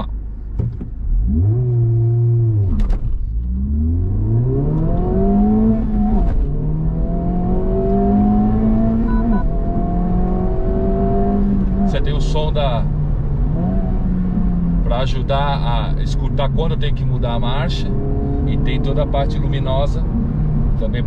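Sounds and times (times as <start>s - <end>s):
car engine accelerating hard: 1.0s - 21.0s
shift-warning beep: 9.0s - 9.5s.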